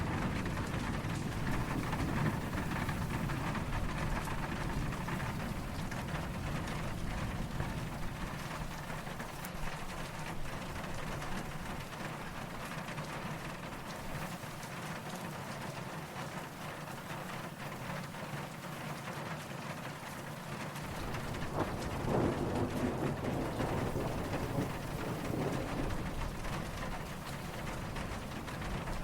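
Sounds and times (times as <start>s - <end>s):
distant thunder rumbling: 0.0s - 9.4s, 20.8s - 29.0s
steady rain falling: 0.0s - 29.0s.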